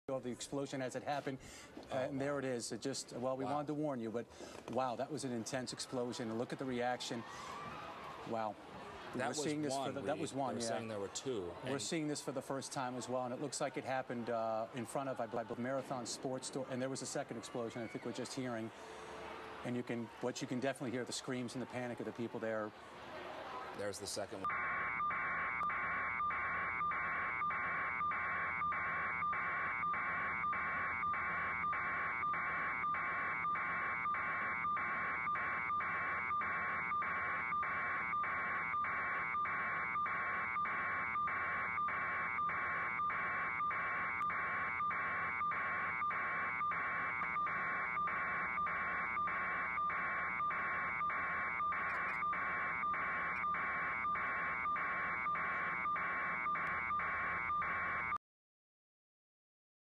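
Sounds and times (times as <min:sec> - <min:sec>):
rapid electronic beeping: 0:24.5 - 0:58.2.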